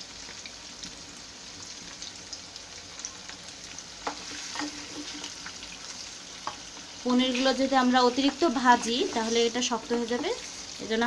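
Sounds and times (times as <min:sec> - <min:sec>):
cheese sizzling in hot oil: 0:00.0 - 0:11.0
wooden spatula scraping pan: 0:04.1 - 0:05.5, 0:07.3 - 0:10.7.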